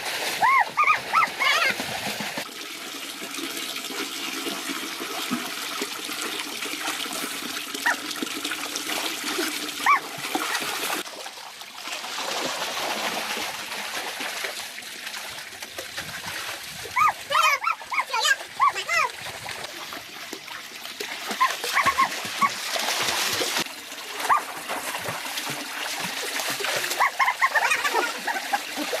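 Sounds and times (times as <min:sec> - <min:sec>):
water running and splashing: 0:00.0 - 0:29.0
high-pitched animal yelps: 0:00.4 - 0:01.8, 0:09.8 - 0:10.0, 0:17.0 - 0:19.1, 0:21.4 - 0:22.5, 0:27.0 - 0:28.5.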